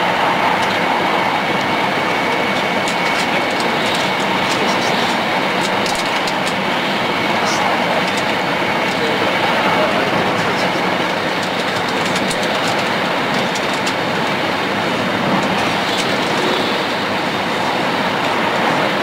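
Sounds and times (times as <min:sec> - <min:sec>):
train rumble on rails: 0:00.0 - 0:19.0.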